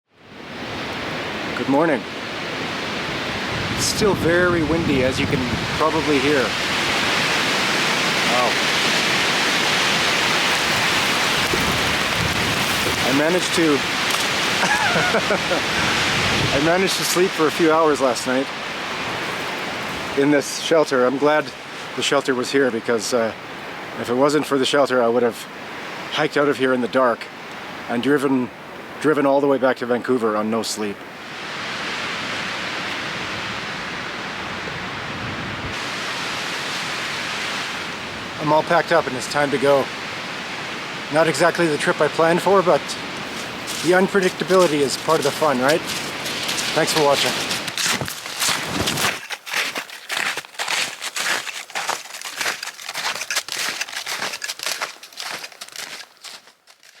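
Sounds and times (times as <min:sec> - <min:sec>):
strong wind blowing: 0:00.3 - 0:17.0, 0:31.4 - 0:38.4, 0:42.9 - 0:49.2
footsteps crunching through snow: 0:08.3 - 0:20.2, 0:43.2 - 0:57.0.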